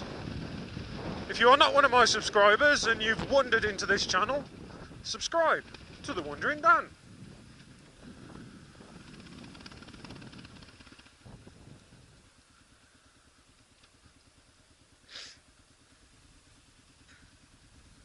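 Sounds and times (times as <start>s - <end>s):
rush of noise: 0.0s - 12.4s
motorcycle engine idling: 0.0s - 18.0s
short hiss: 15.0s - 15.5s.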